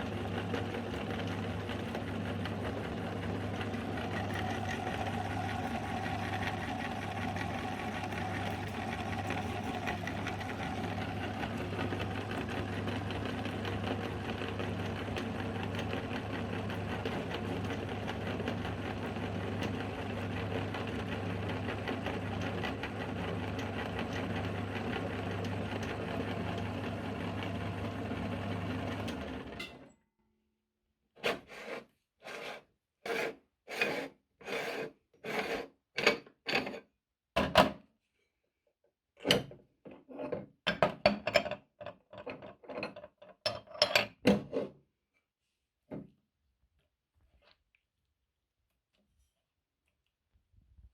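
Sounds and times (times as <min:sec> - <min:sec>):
electric meat grinder running: 0:00.0 - 0:29.6.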